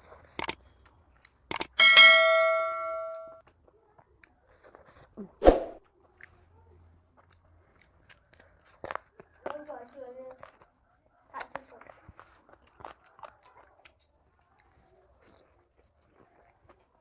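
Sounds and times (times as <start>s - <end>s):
clear ringing tone: 1.8s - 3.4s
metal tableware clink: 1.8s - 3.4s.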